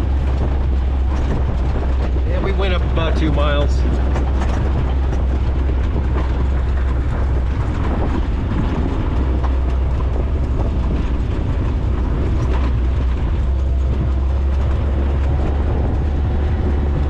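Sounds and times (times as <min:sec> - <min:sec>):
vehicle engine drone: 0:00.0 - 0:17.0
vehicle rattles and knocks: 0:00.0 - 0:17.0.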